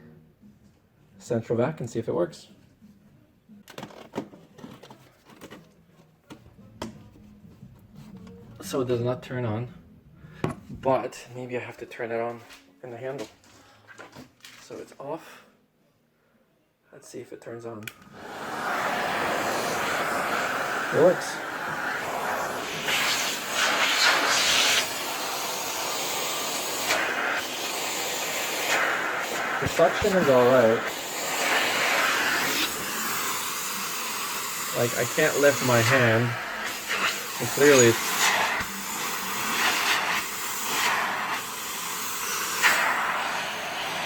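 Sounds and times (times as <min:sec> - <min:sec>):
vacuum rushing hiss: 0:17.9 - 0:44.0.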